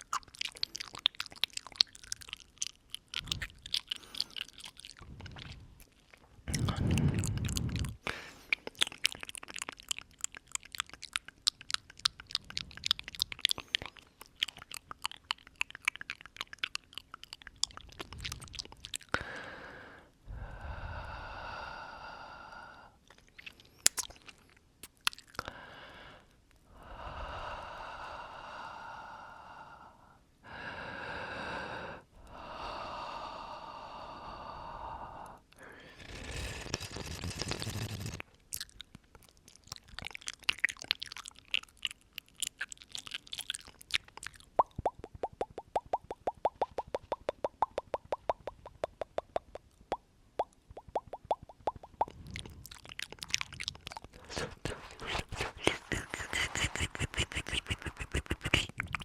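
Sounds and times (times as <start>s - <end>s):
wet mouth clicks and smacks: 0.0s - 19.2s, 23.0s - 25.5s, 35.5s - 59.0s.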